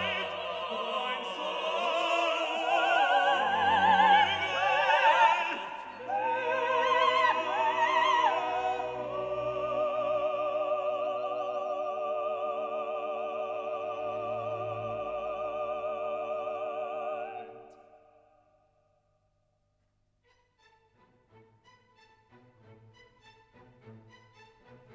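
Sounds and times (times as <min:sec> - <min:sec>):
steady musical accompaniment: 0:00.0 - 0:17.8, 0:20.2 - 0:24.9
operatic singing with vibrato: 0:00.0 - 0:18.4.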